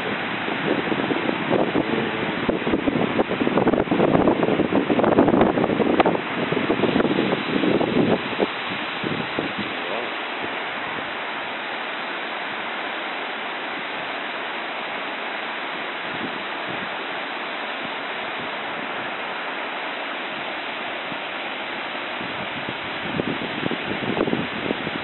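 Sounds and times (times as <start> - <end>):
wind on microphone: 0.0 - 11.2, 15.9 - 19.6, 20.2 - 25.0
floodwater rushing: 0.0 - 25.0.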